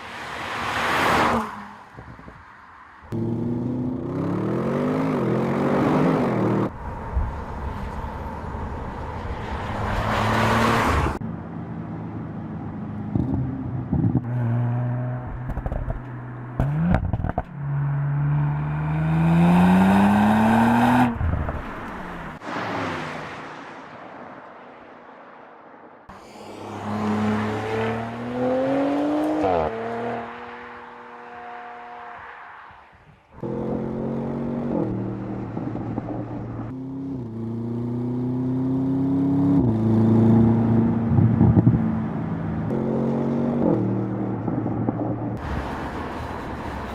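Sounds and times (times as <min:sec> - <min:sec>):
car engine idling and revving: 0:33.3 - 0:46.9.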